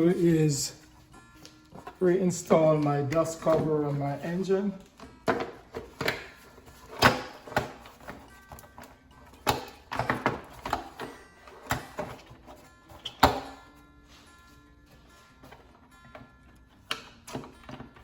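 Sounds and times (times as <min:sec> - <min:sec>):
faint background music: 0:00.0 - 0:18.0
plastic cover knocks and clunks: 0:05.1 - 0:08.2, 0:09.4 - 0:11.1.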